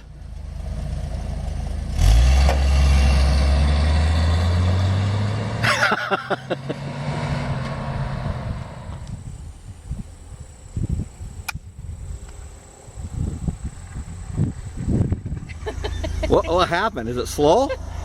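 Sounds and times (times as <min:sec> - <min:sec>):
pickup engine accelerating: 0:00.0 - 0:11.1.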